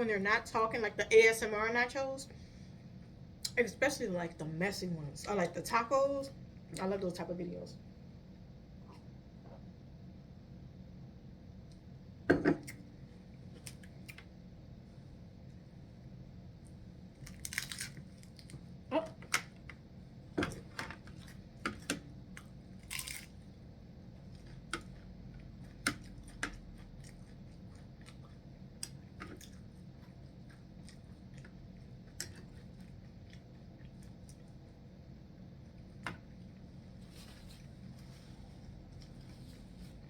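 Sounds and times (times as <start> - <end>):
steady low hum: 0.0 - 40.0
chewing crunchy tortilla chips: 17.2 - 18.6, 22.8 - 23.5, 24.3 - 34.8.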